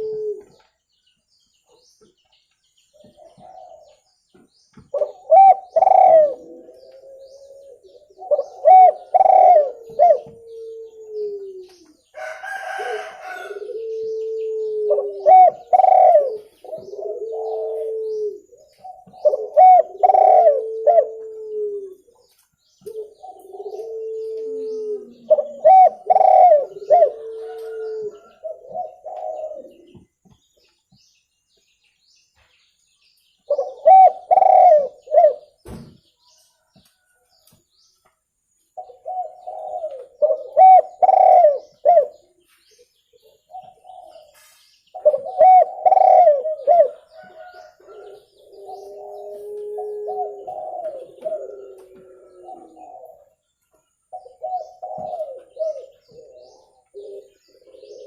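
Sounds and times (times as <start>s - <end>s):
dove cooing: 0.0s - 0.7s, 3.0s - 4.1s, 4.8s - 22.2s, 22.8s - 30.1s, 33.5s - 35.6s, 38.8s - 42.4s, 43.4s - 53.4s, 54.1s - 58.0s.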